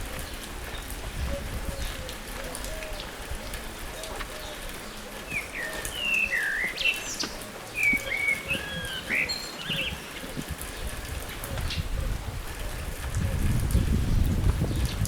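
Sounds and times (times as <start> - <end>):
birds whistling chirps: 5.3 - 10.5.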